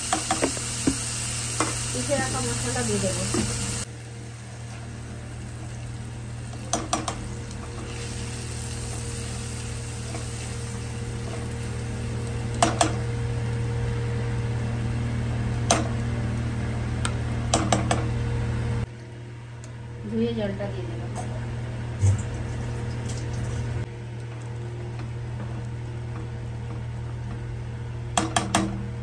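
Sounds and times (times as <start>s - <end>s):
paste sizzling in hot oil: 0.0s - 14.5s.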